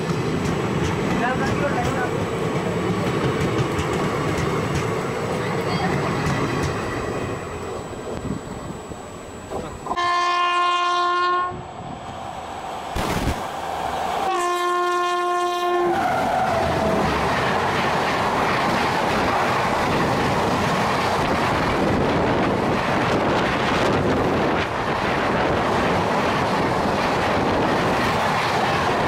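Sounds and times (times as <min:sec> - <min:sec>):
train wheels clickety-clack: 0:00.0 - 0:07.1, 0:16.5 - 0:29.0
train horn: 0:09.9 - 0:11.6, 0:14.3 - 0:16.2.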